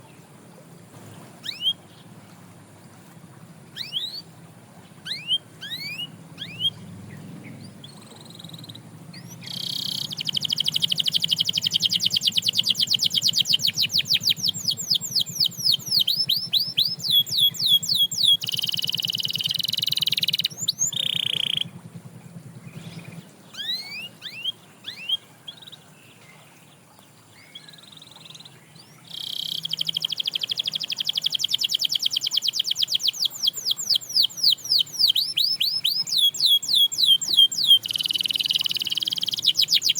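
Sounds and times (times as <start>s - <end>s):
canary trilling: 1.4s - 1.8s, 3.7s - 4.3s, 5.0s - 6.8s, 7.5s - 21.7s, 22.8s - 25.2s, 29.0s - 39.9s.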